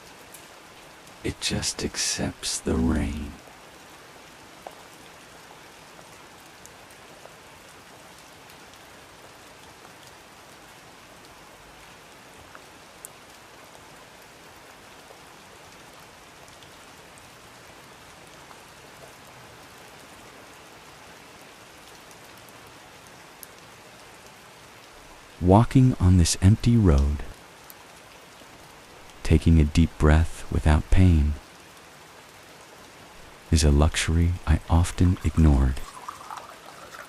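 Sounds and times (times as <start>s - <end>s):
faint rainfall hissing: 0.0s - 4.5s, 24.5s - 37.0s.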